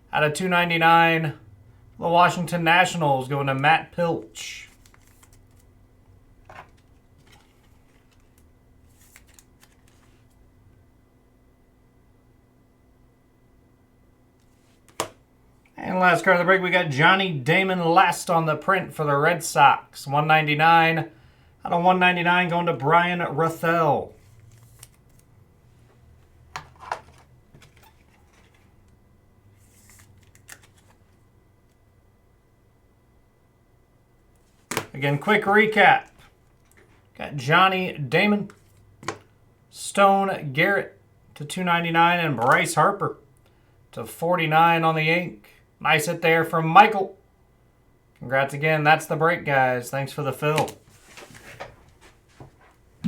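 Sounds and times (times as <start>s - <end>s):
trading cards rustling: 4.4s - 5.7s, 6.4s - 10.4s, 24.2s - 29.0s, 29.6s - 31.2s
trading cards clicking: 30.2s - 31.0s.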